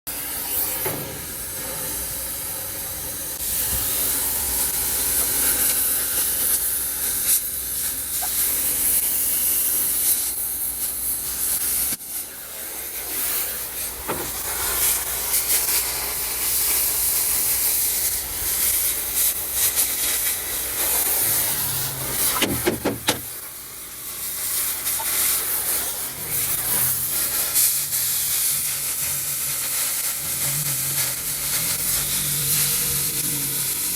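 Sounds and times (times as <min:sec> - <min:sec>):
crackling and popping metal: 0:00.1 - 0:33.9
cutting torch hissing: 0:00.1 - 0:33.9.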